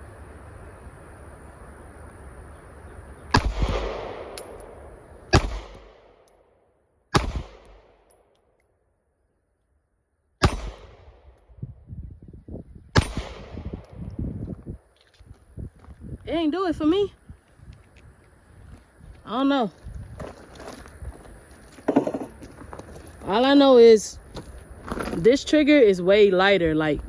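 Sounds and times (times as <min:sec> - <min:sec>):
pistol shots with echo: 0:03.3 - 0:06.3, 0:07.1 - 0:08.2, 0:10.4 - 0:11.4, 0:13.0 - 0:14.0.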